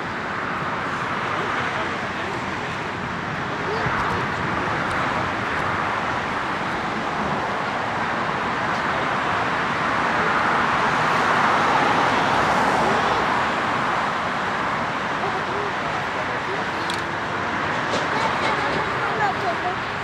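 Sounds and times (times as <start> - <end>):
jet engine rushing: 14.7 - 20.0.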